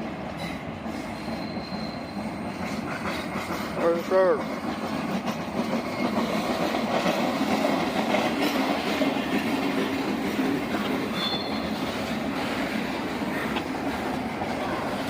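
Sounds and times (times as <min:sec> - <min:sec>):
railroad cars rumbling on rails: 0:00.0 - 0:15.0
wheel squeal: 0:00.9 - 0:03.6, 0:09.6 - 0:12.2.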